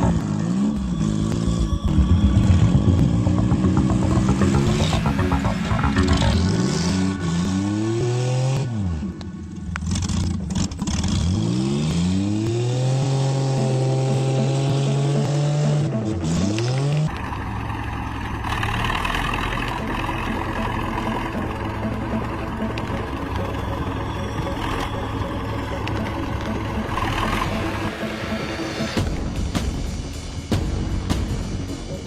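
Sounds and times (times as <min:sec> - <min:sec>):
car engine revving: 0:00.0 - 0:29.3.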